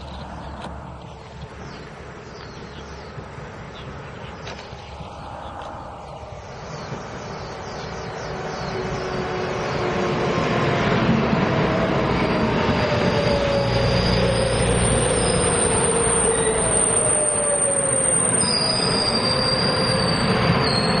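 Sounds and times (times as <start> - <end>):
electric train falling whine: 4.4 - 21.0
high wheel squeal: 12.0 - 21.0.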